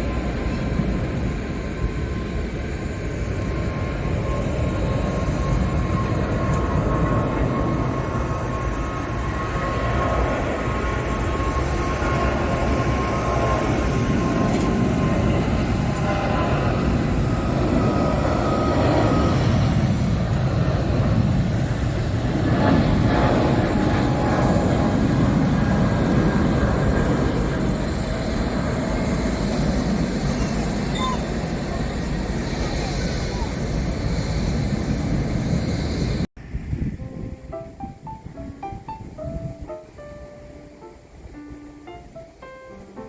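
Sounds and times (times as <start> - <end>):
jet engines rumbling: 0.0 - 43.0.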